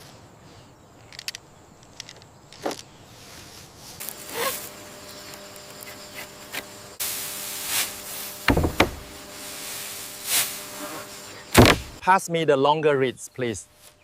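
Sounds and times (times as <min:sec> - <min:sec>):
dry reeds rustling: 0:02.7 - 0:12.0
heavy thumps: 0:08.5 - 0:09.2, 0:11.6 - 0:12.0.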